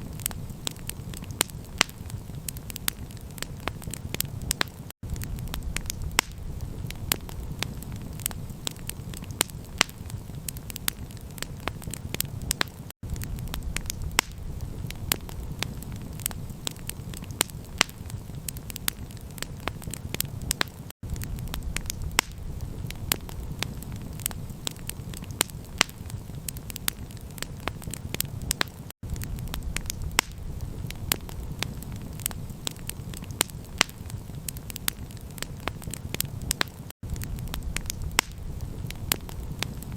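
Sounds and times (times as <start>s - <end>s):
campfire crackling and popping: 0.0s - 39.9s
steady low rumble: 5.0s - 8.9s, 13.0s - 16.9s, 21.0s - 24.9s, 29.0s - 33.1s, 37.0s - 39.9s.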